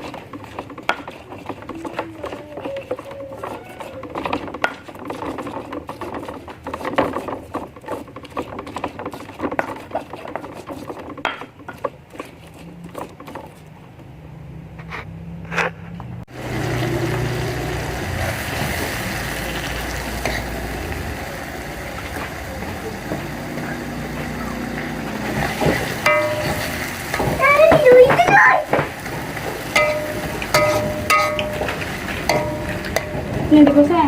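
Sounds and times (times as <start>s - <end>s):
irregular clicking and knocking: 0.0s - 14.2s, 24.2s - 34.0s.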